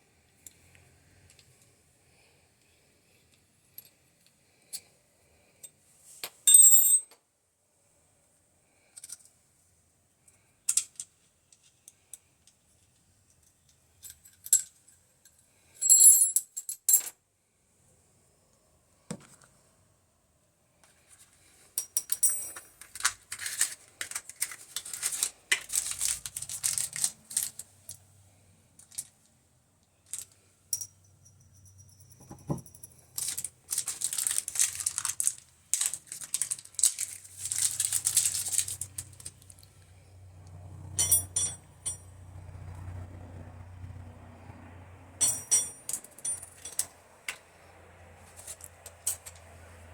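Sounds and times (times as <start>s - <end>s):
small hard parts clinking: 21.8s - 28.0s, 30.0s - 39.8s, 40.9s - 42.2s, 45.2s - 47.5s, 48.3s - 49.6s.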